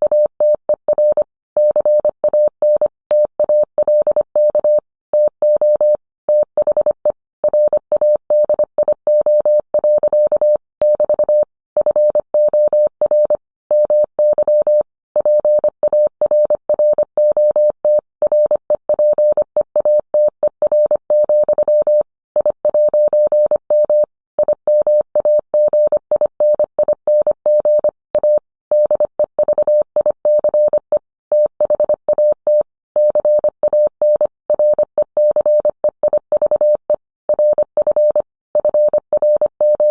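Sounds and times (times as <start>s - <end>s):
morse code tone: 27.5s - 39.9s.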